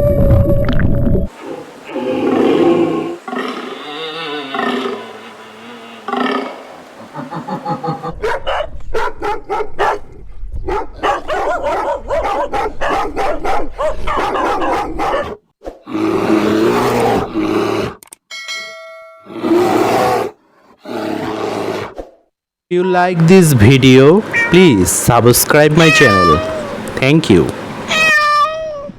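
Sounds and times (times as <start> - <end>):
dog barking rapidly: 8.2 - 15.4.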